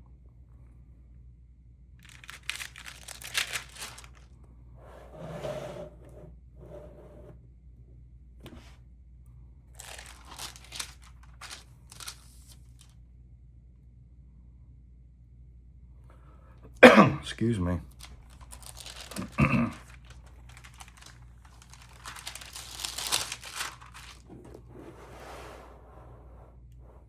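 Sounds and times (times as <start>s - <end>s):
album pages rustling: 2.1s - 4.2s, 9.8s - 12.8s, 17.9s - 25.2s.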